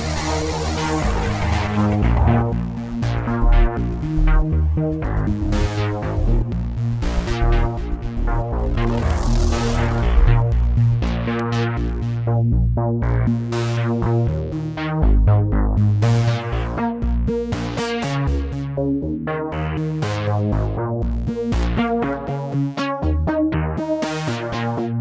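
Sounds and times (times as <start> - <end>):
electronic synthesizer music: 0.0 - 12.2
bass line: 0.0 - 25.0.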